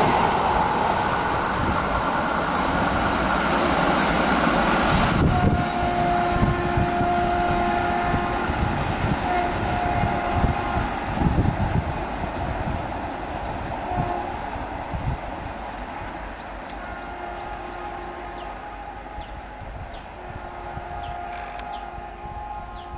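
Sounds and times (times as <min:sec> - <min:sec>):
train rumble and wheel clatter: 0:00.0 - 0:22.9
train horn blasts: 0:05.1 - 0:11.4, 0:13.8 - 0:14.5, 0:16.7 - 0:22.9.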